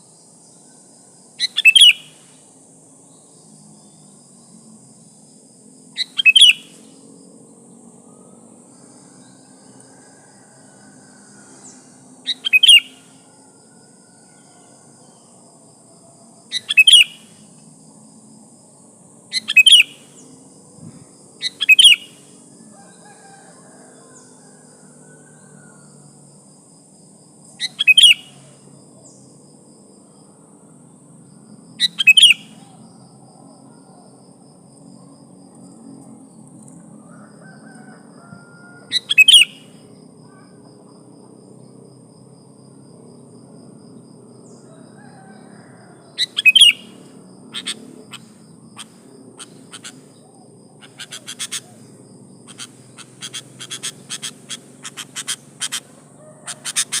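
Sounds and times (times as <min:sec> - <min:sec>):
bird calling: 0:01.4 - 0:02.2, 0:06.0 - 0:06.8, 0:12.2 - 0:13.2, 0:16.5 - 0:17.3, 0:19.3 - 0:20.2, 0:21.4 - 0:22.2, 0:27.6 - 0:28.4, 0:31.8 - 0:32.8, 0:37.8 - 0:40.6, 0:45.1 - 0:57.0.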